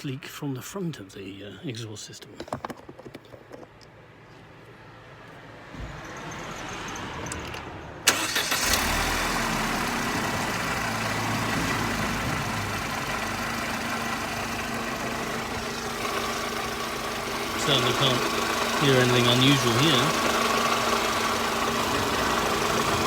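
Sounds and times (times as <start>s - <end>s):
car engine idling: 8.1s - 23.0s.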